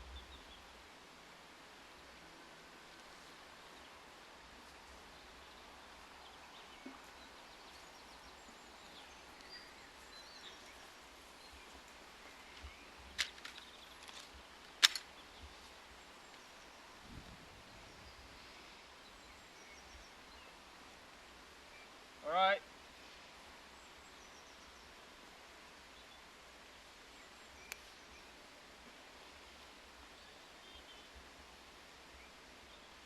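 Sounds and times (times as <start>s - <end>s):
sharp clicks: 13.2s - 15.1s.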